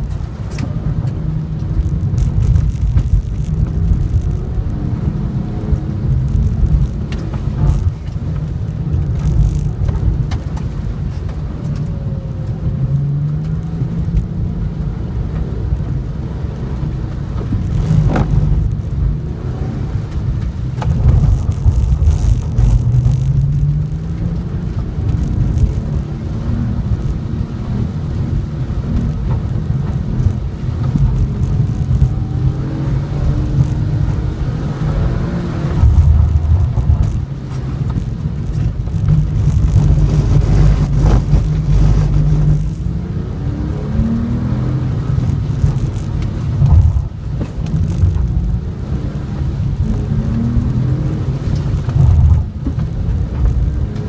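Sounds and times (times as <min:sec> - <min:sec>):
car engine revving: 0:00.0 - 0:54.0
rain and road spray hiss: 0:00.0 - 0:54.0.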